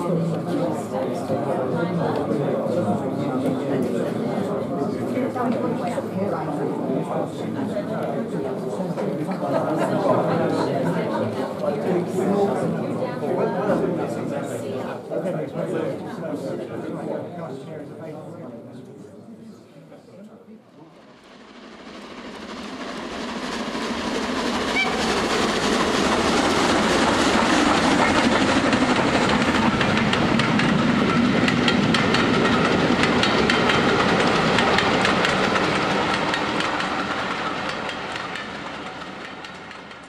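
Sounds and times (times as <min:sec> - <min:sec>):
train wheels clicking over rail joints: 0:23.8 - 0:40.0.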